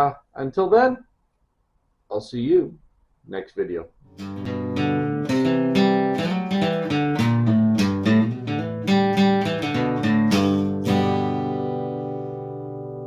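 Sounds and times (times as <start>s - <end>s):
acoustic guitar strummed chords: 4.0s - 13.0s.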